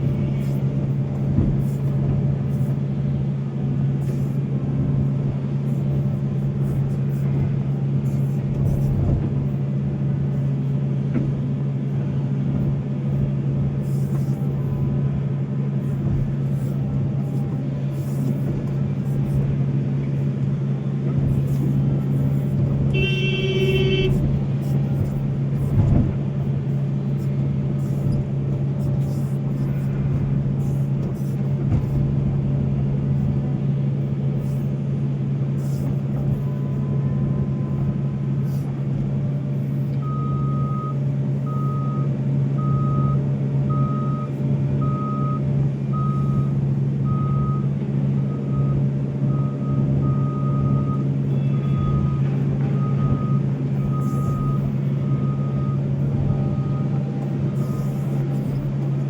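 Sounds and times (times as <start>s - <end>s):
excavator diesel engine running: 0.0s - 59.0s
reversing alarm beeping: 22.4s - 24.2s, 39.6s - 58.8s.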